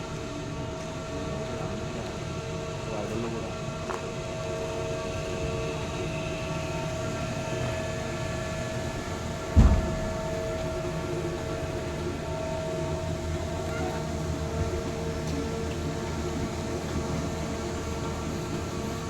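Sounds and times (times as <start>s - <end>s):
belt conveyor rumbling: 0.0s - 19.0s
loud thump: 9.5s - 10.4s.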